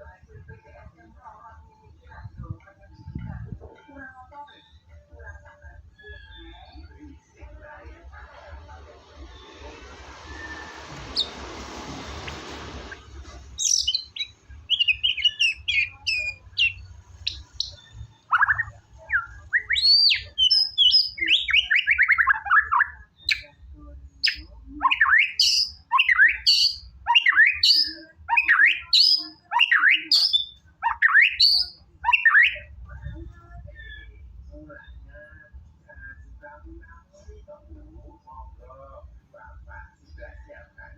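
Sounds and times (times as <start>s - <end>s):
songbird singing whistles: 9.3s - 11.6s, 13.6s - 23.6s, 24.2s - 32.7s.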